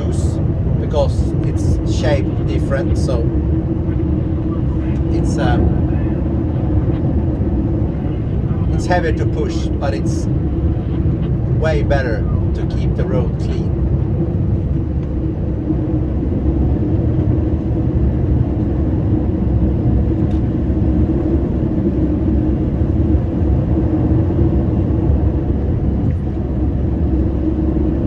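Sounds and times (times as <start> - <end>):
truck diesel engine rumbling: 0.0 - 28.0.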